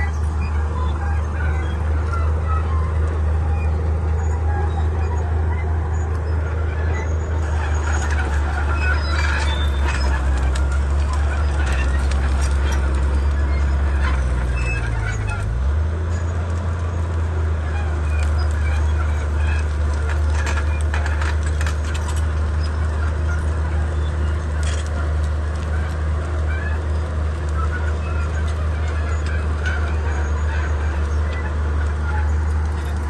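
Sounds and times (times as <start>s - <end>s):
bulldozer diesel engine running: 0.0s - 33.0s
sharp clanks and cracks: 18.0s - 33.0s.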